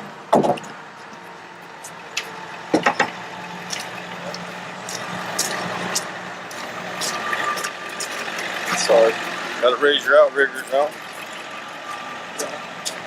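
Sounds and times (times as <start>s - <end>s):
truck engine running: 0.0s - 13.0s
sharp knocks and clicks: 0.3s - 1.2s, 1.8s - 8.2s.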